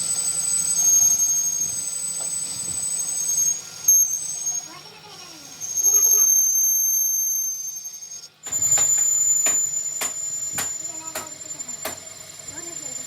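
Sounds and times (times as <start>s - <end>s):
high-pitched whine: 0.0s - 13.0s
sharp knocks: 8.5s - 12.0s.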